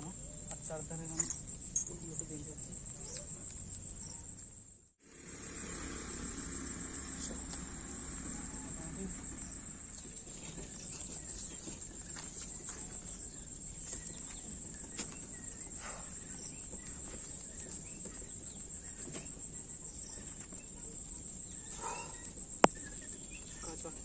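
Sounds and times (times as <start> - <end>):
high-pitched insect drone: 0.0 - 11.4.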